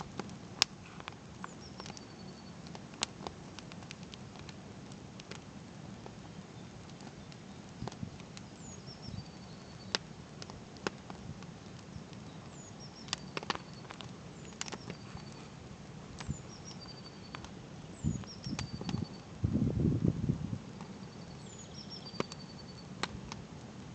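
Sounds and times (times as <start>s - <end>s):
campfire crackling and popping: 0.0s - 23.9s
songbird singing: 1.4s - 2.7s, 6.2s - 10.1s, 11.8s - 19.4s, 20.8s - 22.9s.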